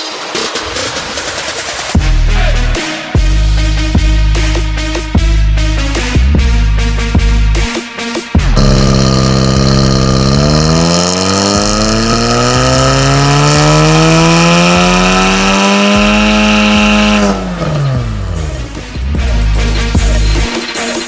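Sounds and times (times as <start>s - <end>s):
car engine revving at full throttle: 8.6s - 19.5s.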